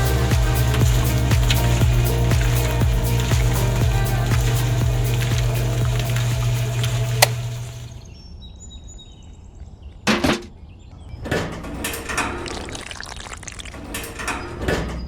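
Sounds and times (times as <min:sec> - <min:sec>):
water pouring and splashing: 0:00.0 - 0:08.1, 0:12.1 - 0:14.2.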